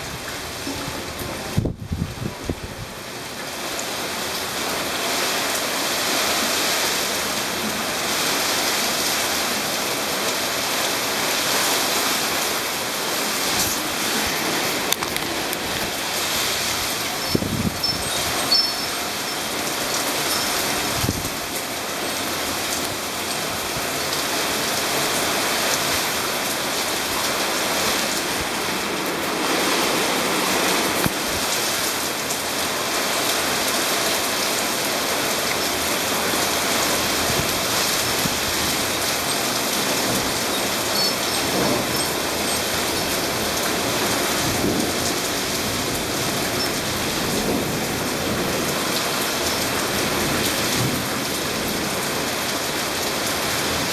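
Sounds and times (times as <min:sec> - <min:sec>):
torrential rain hissing: 0:00.0 - 0:53.9.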